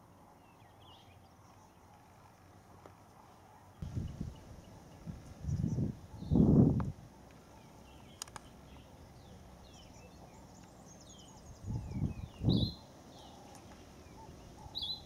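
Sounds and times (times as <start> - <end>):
small birds chirping: 0.0 - 15.0
sharp clicks: 8.2 - 8.5.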